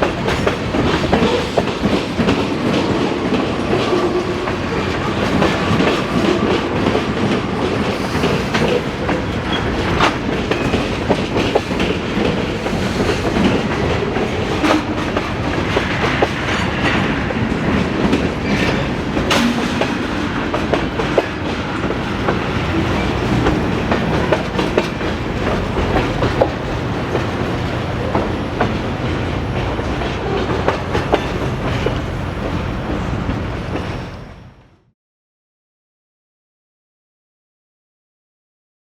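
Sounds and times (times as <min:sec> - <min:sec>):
train wheels clickety-clack: 0:00.0 - 0:34.7
sharp metal clanks: 0:19.3 - 0:20.2.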